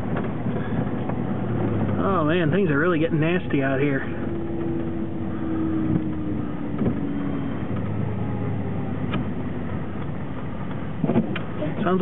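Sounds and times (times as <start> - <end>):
road and cab noise: 0.0 - 12.0
siren-like driveline whine: 4.2 - 9.0.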